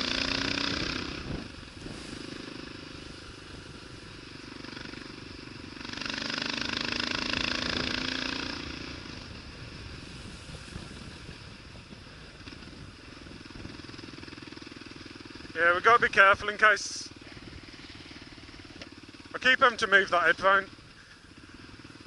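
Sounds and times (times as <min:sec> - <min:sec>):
motorcycle engine under load: 0:00.0 - 0:22.0
riding noise: 0:00.0 - 0:22.0.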